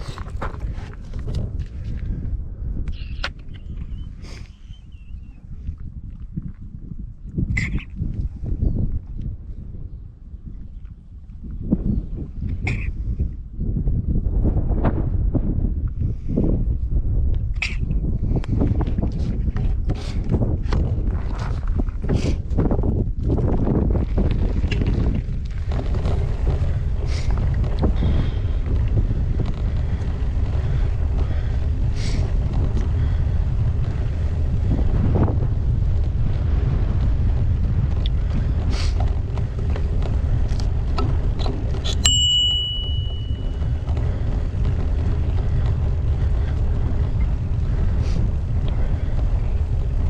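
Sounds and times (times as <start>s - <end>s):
bike clicks and rattles: 0.0s - 4.6s, 17.4s - 50.0s
wind rumbling over microphone: 0.0s - 50.0s
bicycle bell ringing: 42.0s - 43.8s.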